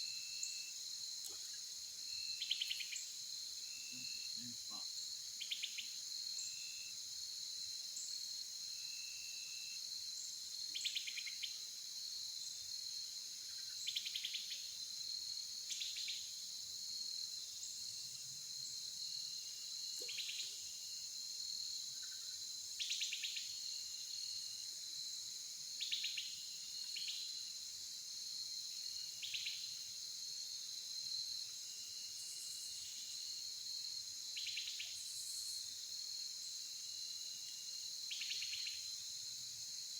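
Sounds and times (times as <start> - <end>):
insects trilling: 0.4 - 6.9.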